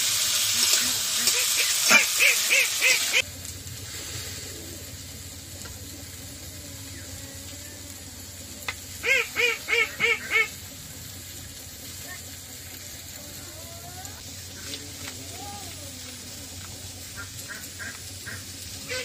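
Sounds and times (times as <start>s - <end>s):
bird calling: 1.2s - 3.2s, 9.0s - 10.6s.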